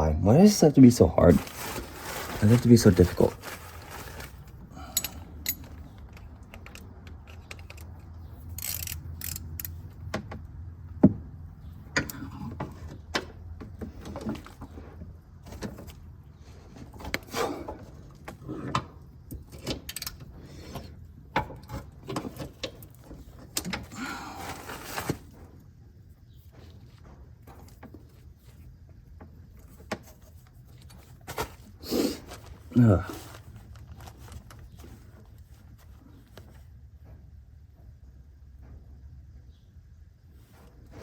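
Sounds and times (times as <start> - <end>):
wrench clinking on metal fitting: 4.9 - 5.8
wrench scraping: 6.7 - 9.8.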